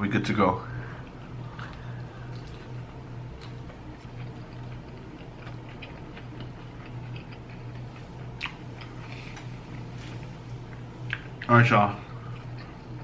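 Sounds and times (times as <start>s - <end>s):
steady low hum: 0.0s - 13.0s
chewing crunchy food: 1.1s - 13.0s.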